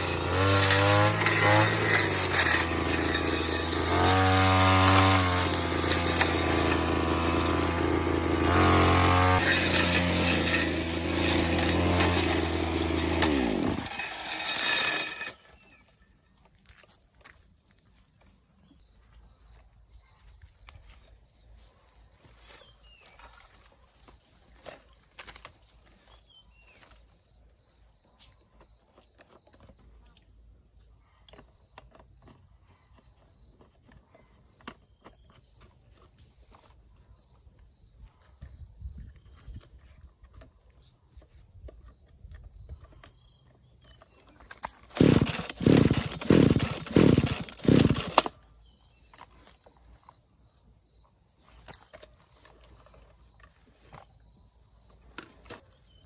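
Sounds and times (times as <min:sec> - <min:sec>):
brush cutter engine revving: 0:00.0 - 0:15.6, 0:44.5 - 0:48.4.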